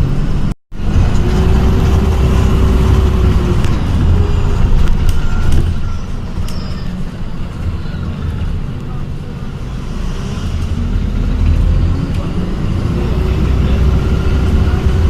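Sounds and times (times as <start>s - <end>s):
bus low rumble: 0.0s - 15.0s.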